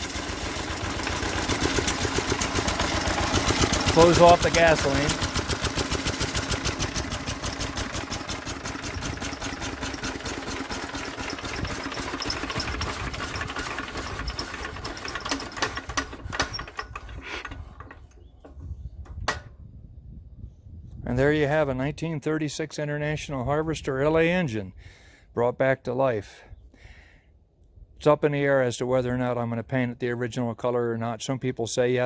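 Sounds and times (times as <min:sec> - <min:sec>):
stationary engine sputtering: 0:00.0 - 0:17.4.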